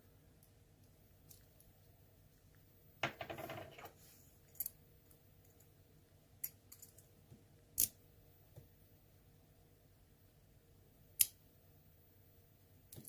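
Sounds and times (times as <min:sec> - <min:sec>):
small metal parts clicking and rattling: 0:04.5 - 0:04.8, 0:06.4 - 0:07.1.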